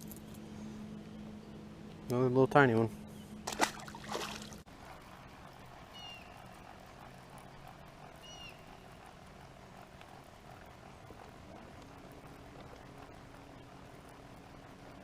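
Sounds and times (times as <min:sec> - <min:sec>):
boat motor humming: 0:00.0 - 0:15.0
bird chirping: 0:08.2 - 0:08.8.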